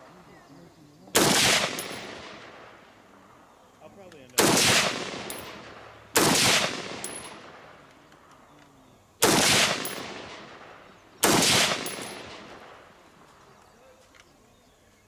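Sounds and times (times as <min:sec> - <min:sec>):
gunshots with long echo: 0:01.1 - 0:03.2, 0:04.4 - 0:07.9, 0:09.2 - 0:13.3.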